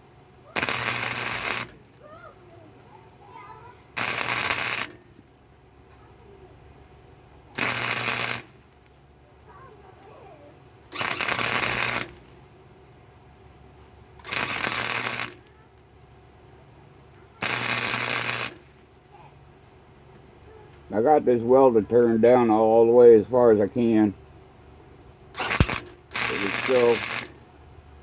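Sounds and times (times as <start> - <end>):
welder crackling hiss: 0.6 - 2.6, 3.9 - 5.3, 7.5 - 9.0, 10.9 - 12.4, 14.2 - 15.7, 17.4 - 19.0, 25.3 - 27.6.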